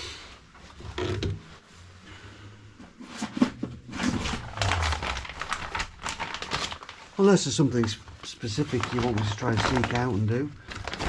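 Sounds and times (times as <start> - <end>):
handling scrapes and rustling: 2.8 - 11.0.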